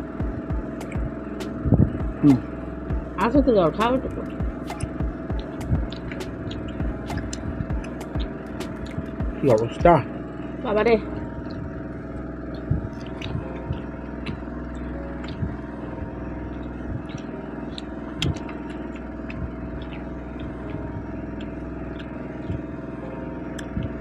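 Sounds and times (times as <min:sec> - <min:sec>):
steady hum: 0:00.0 - 0:24.0
eating clicks and smacks: 0:00.2 - 0:02.3, 0:04.2 - 0:09.8, 0:12.5 - 0:24.0.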